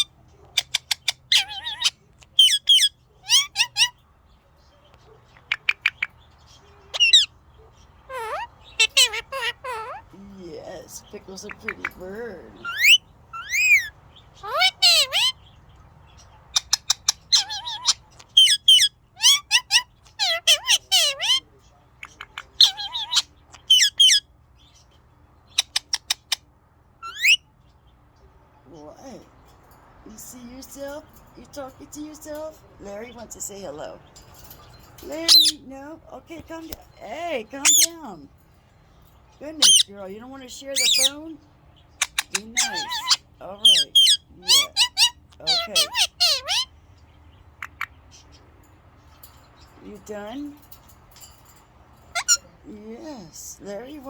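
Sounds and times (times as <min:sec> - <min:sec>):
parrot squawk: 0:00.0 - 0:04.0, 0:05.1 - 0:10.2, 0:10.9 - 0:15.5, 0:16.5 - 0:24.3, 0:25.5 - 0:27.5, 0:35.0 - 0:35.7, 0:37.6 - 0:38.0, 0:39.6 - 0:41.2, 0:42.0 - 0:46.8, 0:47.5 - 0:48.3, 0:52.1 - 0:52.5
parrot chirping and calling: 0:00.0 - 0:28.1, 0:28.8 - 0:54.0.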